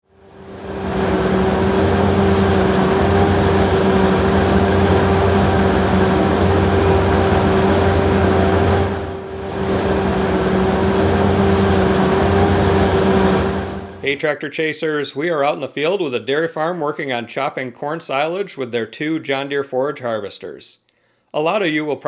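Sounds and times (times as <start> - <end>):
forage harvester droning: 0.0 - 14.1.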